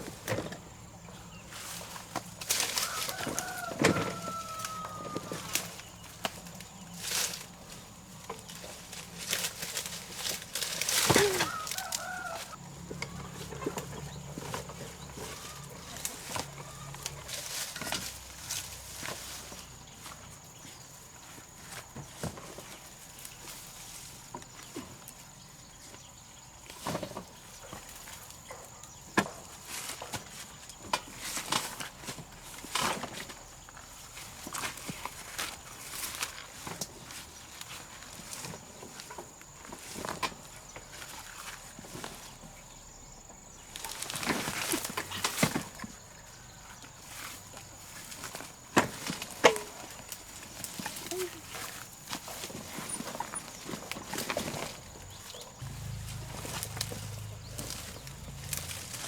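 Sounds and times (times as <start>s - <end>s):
chickens clucking: 11.1s - 17.4s
steady low hum: 55.6s - 59.0s.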